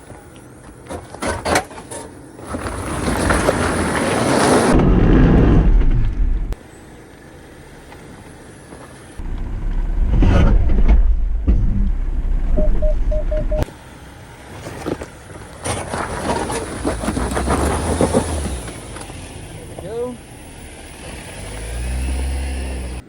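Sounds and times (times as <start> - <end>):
off-road engine rumbling: 0.0 - 23.0
short electronic beeps: 12.5 - 13.7.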